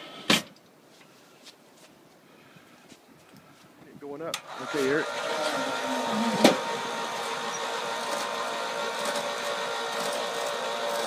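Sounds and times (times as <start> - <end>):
lift motor hum: 4.4 - 11.0.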